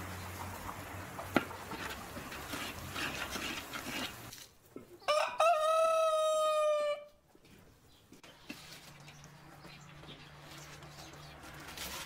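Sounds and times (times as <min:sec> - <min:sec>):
rooster crowing: 0:05.1 - 0:07.1.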